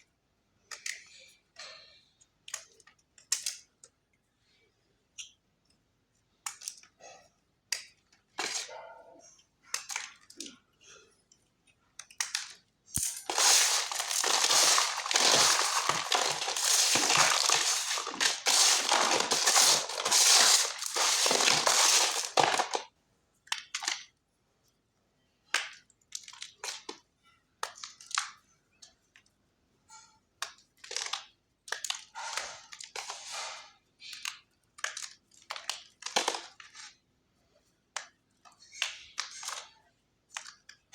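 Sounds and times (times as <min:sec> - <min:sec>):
chalk crunching and crumbling: 0:13.0 - 0:22.8.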